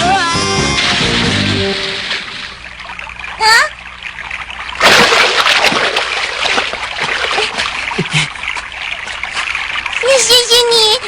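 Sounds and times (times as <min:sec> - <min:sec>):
water splashing and churning: 0:00.8 - 0:11.0
cartoon big splash into water: 0:04.8 - 0:06.8.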